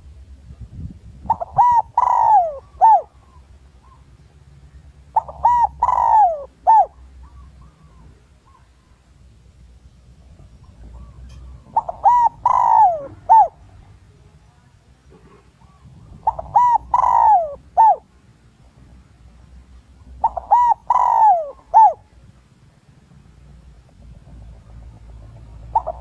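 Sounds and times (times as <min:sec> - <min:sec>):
dove cooing: 0:01.2 - 0:04.1, 0:05.1 - 0:09.0, 0:10.6 - 0:14.0, 0:15.1 - 0:18.2, 0:19.8 - 0:22.2, 0:25.0 - 0:26.0.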